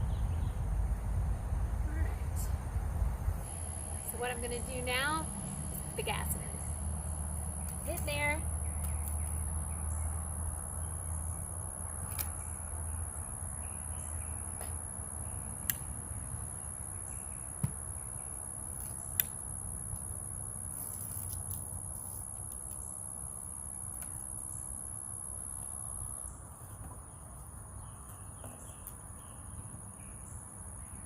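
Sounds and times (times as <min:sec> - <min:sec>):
low outdoor rumble: 0:00.0 - 0:17.2
high-pitched insect chorus: 0:00.0 - 0:31.0
sharp clicks: 0:12.0 - 0:12.4.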